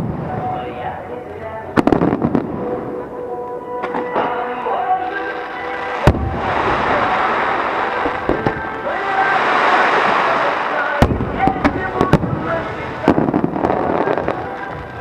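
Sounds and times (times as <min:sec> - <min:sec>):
background music: 0:00.0 - 0:15.0
fireworks crackling hiss: 0:04.8 - 0:15.0
firework bang: 0:06.0 - 0:14.9.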